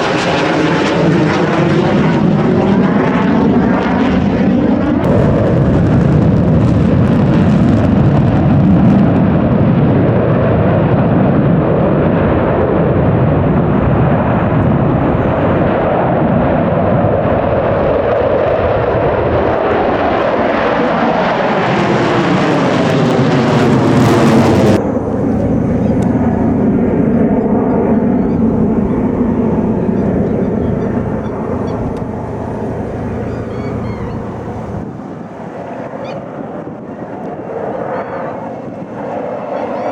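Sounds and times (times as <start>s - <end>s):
steady jet roar: 0.0s - 8.3s, 19.5s - 39.9s
jet aircraft flying past: 0.0s - 39.9s.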